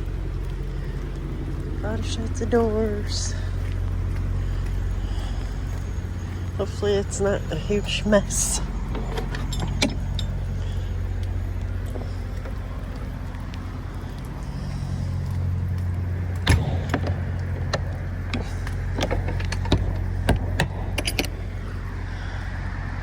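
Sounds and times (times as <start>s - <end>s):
diesel truck engine idling: 0.0s - 23.0s
sharp clicks and knocks: 8.2s - 22.1s.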